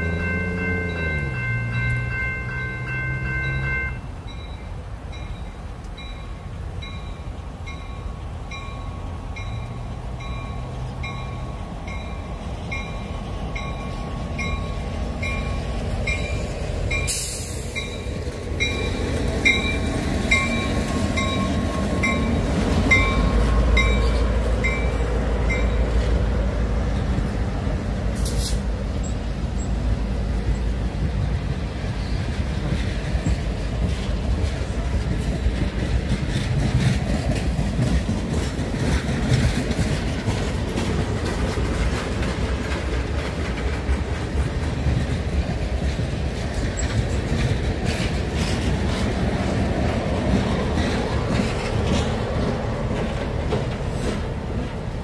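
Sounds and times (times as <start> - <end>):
railroad crossing bells ringing: 0.0 - 27.7
train rumbling past: 0.0 - 55.0.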